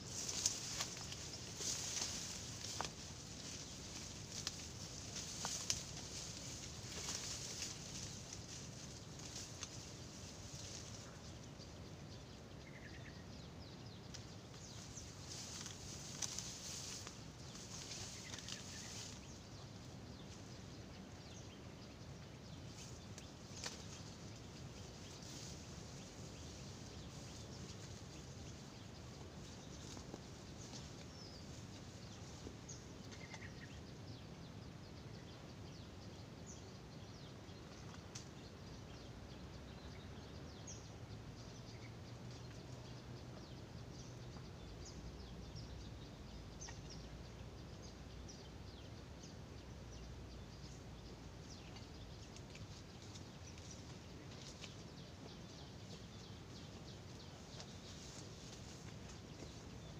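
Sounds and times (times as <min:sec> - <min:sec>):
open-air background hiss: 0:00.0 - 0:59.9
small birds chirping: 0:00.0 - 0:59.9.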